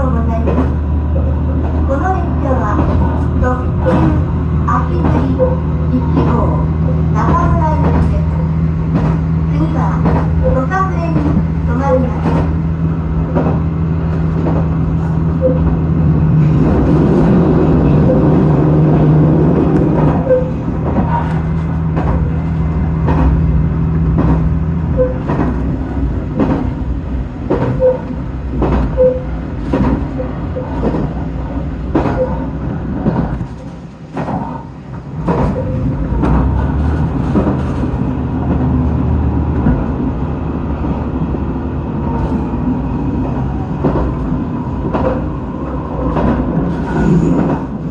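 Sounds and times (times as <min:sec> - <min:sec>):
diesel engine droning: 0:00.0 - 0:32.8
train wheels clicking over rail joints: 0:00.0 - 0:47.9.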